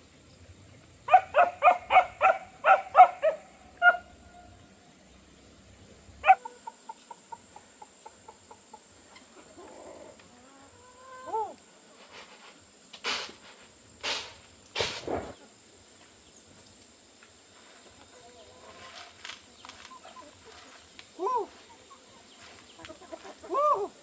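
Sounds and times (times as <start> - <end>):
animal calls and clucks: 6.2 - 12.4, 17.9 - 24.0
short swishing rustles: 14.1 - 15.4.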